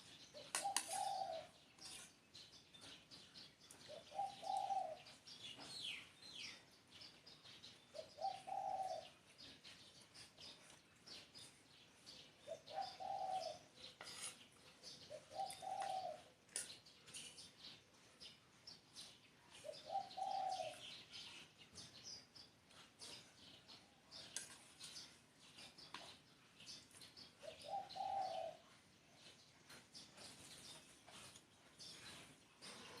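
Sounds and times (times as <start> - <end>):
small birds chirping: 0.0 - 33.0
dove cooing: 0.3 - 1.6, 3.8 - 5.2, 7.9 - 9.2, 12.5 - 13.7, 14.9 - 16.3, 19.6 - 21.0, 27.4 - 28.7.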